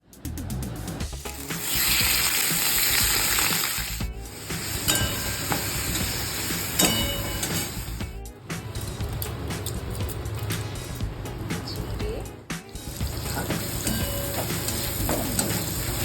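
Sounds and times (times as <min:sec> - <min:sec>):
food sizzling in hot oil: 0:01.0 - 0:08.1, 0:12.8 - 0:16.0.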